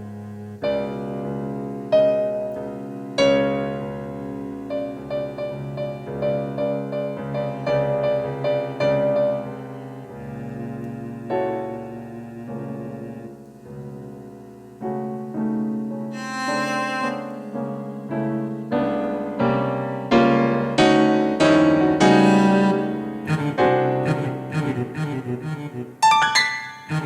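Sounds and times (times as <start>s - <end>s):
keyboard playing chords: 14.9s - 27.0s.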